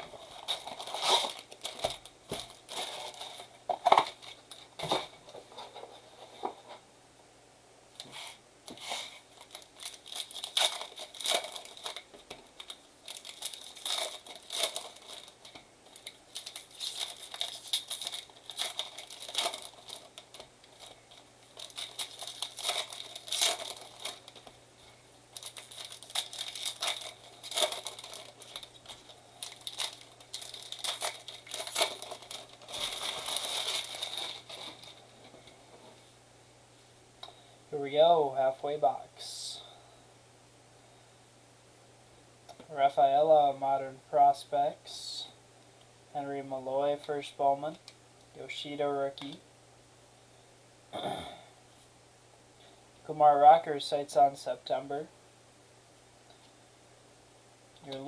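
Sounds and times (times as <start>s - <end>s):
wrappers being torn and crinkled: 0.2s - 4.7s, 8.8s - 24.6s, 25.3s - 35.1s.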